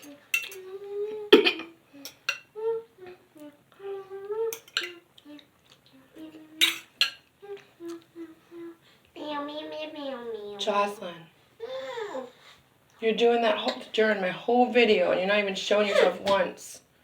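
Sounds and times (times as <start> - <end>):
utensil clinking against bowl: 0.0 - 0.6, 4.6 - 5.0, 6.6 - 7.2
girl humming and babbling: 0.0 - 6.6, 7.4 - 9.4, 11.6 - 12.4.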